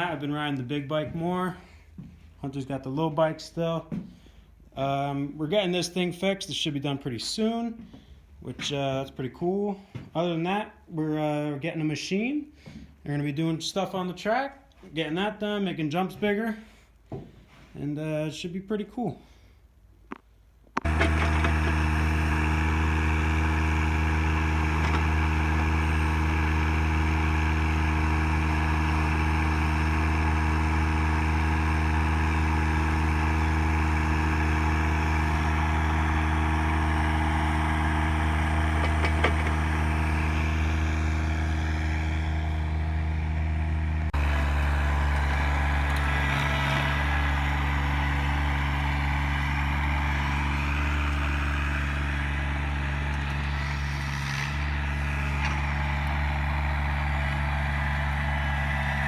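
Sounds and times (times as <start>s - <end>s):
engine running steadily: 20.8s - 59.0s.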